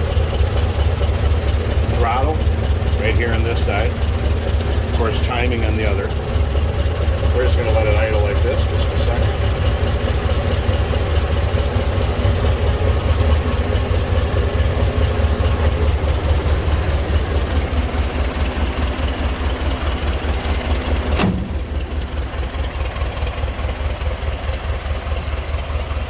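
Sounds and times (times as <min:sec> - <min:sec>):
car engine idling: 0:00.0 - 0:26.0
sharp click: 0:21.2 - 0:21.6.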